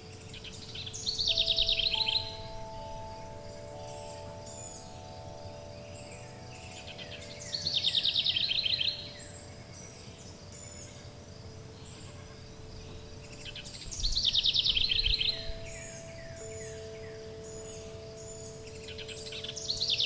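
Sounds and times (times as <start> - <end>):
faint high chirps: 0.0 - 11.0
soft sustained chime tones: 0.0 - 20.0
songbird trilling: 0.0 - 20.0.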